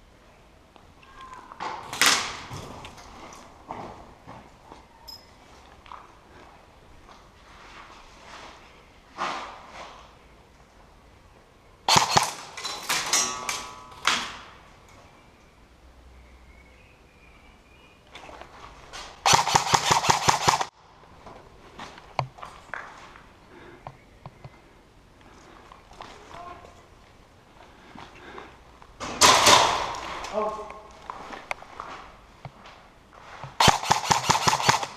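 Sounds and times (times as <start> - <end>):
airsoft guns firing: 11.9 - 14.3, 19.2 - 20.7, 29.2 - 30.1, 33.6 - 34.9.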